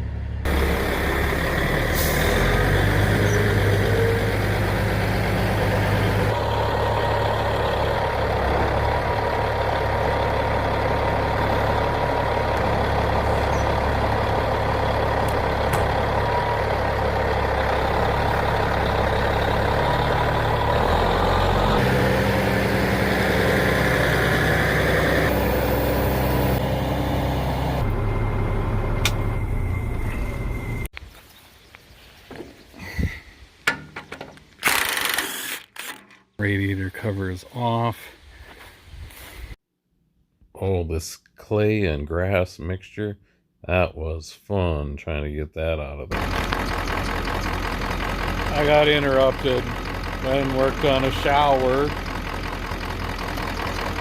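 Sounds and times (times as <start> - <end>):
engine running: 0.0 - 30.9, 46.1 - 54.0.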